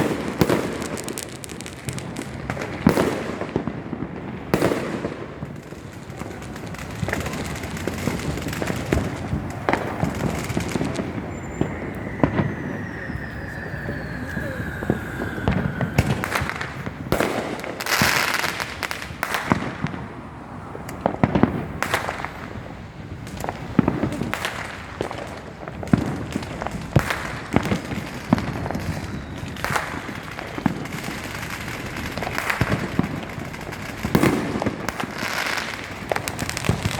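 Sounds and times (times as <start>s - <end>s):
crackling hiss of fireworks: 0.0s - 36.9s
fireworks banging and popping: 0.0s - 36.9s
long falling whistle: 10.5s - 17.3s.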